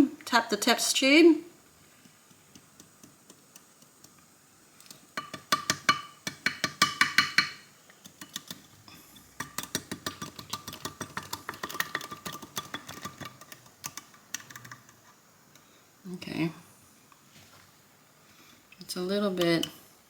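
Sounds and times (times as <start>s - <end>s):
test tube tapping clicks: 4.8s - 8.6s, 9.4s - 15.0s.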